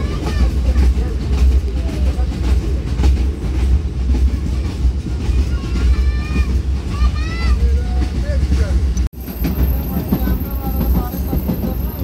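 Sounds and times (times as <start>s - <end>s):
train rumbling on track: 0.0s - 12.0s
wheels clicking over rail joints: 0.0s - 12.0s.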